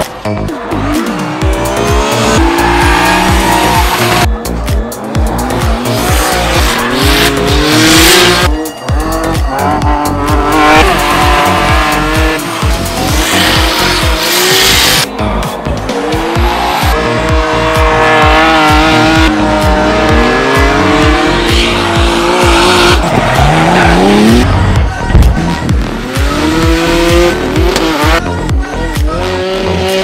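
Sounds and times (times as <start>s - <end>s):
car engines revving: 0.0s - 30.0s
music with a steady beat: 0.0s - 30.0s
tyres squealing and skidding: 0.5s - 4.3s, 20.1s - 24.7s.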